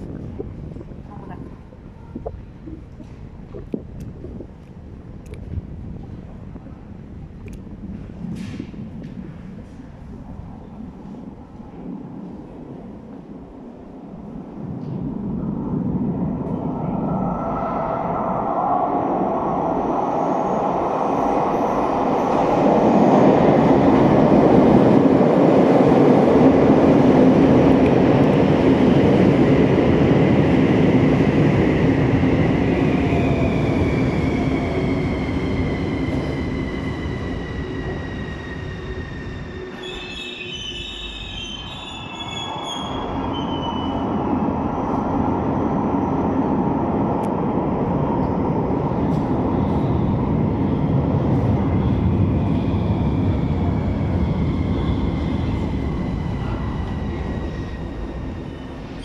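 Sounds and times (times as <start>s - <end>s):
electric whine of braking train: 32.6s - 45.0s.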